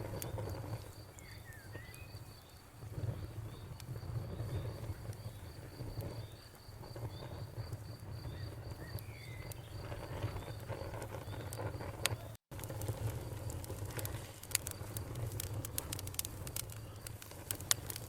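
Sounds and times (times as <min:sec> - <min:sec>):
wood fire crackling: 0:00.0 - 0:18.0
sharp pops: 0:05.9 - 0:18.0.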